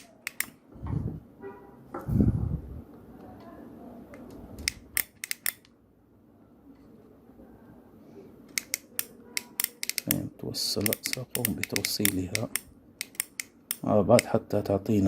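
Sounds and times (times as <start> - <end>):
small tools clicking: 0.0 - 0.6, 4.6 - 5.7, 8.5 - 10.2, 10.8 - 14.4.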